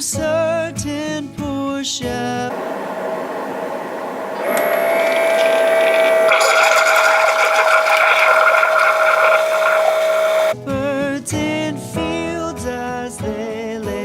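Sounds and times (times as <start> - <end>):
appliance motor humming: 2.5 - 10.6
whirring hiss: 2.5 - 10.6.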